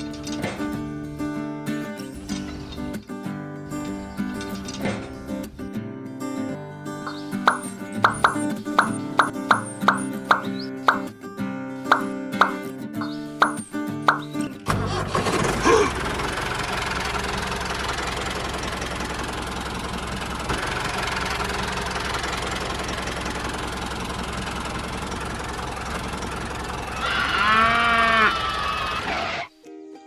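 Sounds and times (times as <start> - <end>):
small engine rumbling: 0.0 - 29.4
cow mooing: 27.0 - 29.4.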